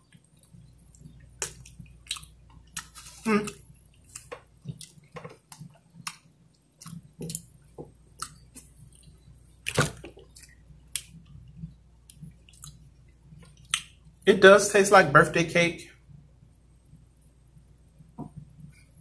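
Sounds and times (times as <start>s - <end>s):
wet chewing mouth sounds: 0.0s - 7.5s, 10.0s - 14.1s.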